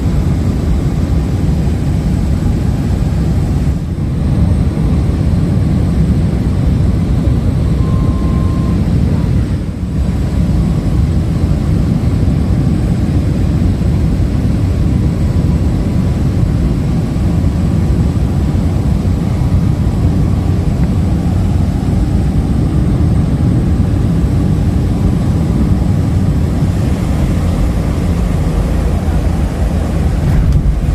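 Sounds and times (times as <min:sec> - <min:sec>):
aircraft cabin rumble: 0:00.0 - 0:30.9.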